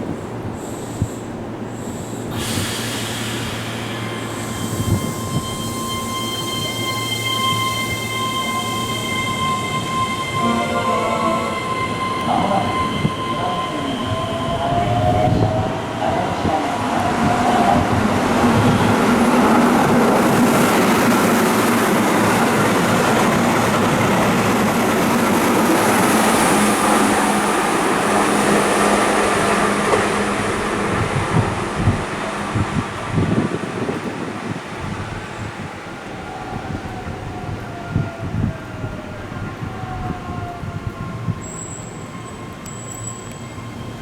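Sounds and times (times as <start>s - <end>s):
electric train running past: 0.3s - 44.0s.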